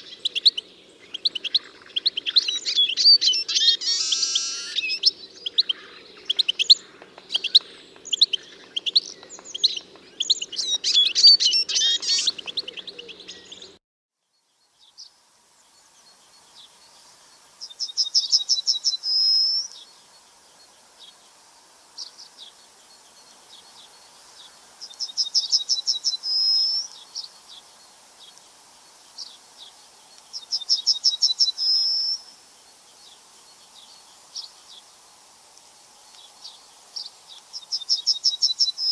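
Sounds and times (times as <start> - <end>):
songbirds chirping: 0.0 - 38.9
bird trilled song: 30.3 - 32.3.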